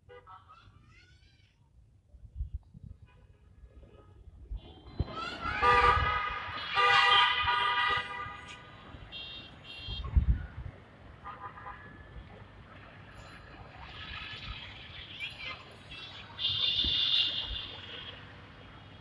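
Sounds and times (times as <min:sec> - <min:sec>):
low traffic rumble: 0:00.0 - 0:19.0
vehicle horns honking: 0:05.5 - 0:10.4, 0:11.2 - 0:12.4, 0:16.0 - 0:18.4.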